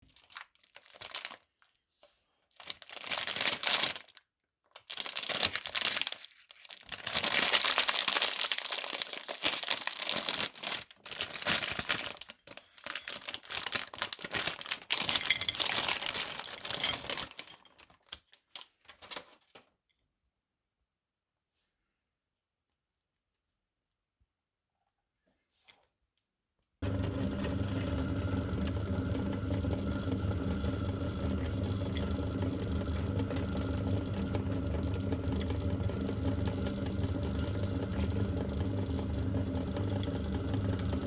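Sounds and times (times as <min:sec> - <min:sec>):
candy wrappers crinkling and tearing: 0:00.0 - 0:01.8, 0:02.4 - 0:19.7.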